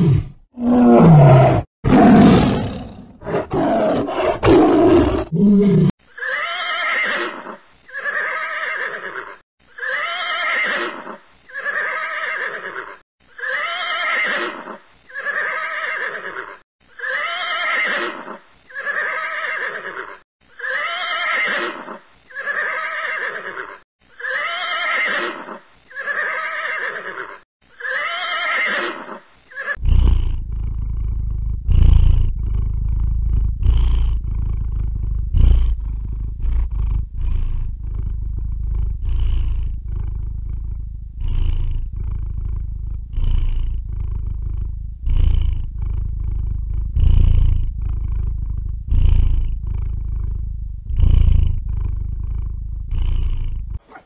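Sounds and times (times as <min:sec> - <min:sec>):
horse whinnying: 0:03.6 - 0:29.8
cat purring: 0:29.8 - 0:54.0.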